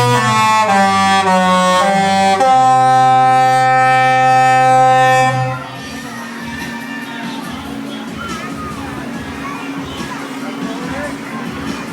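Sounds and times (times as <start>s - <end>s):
long held music notes: 0.0s - 8.1s.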